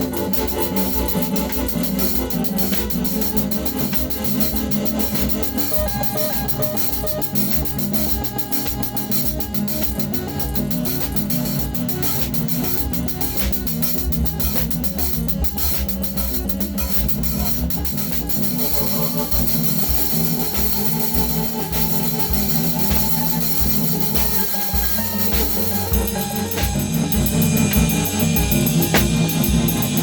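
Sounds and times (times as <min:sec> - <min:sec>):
drum kit improvising: 0:00.0 - 0:30.0
synthesizer pulsing low pattern: 0:00.0 - 0:30.0.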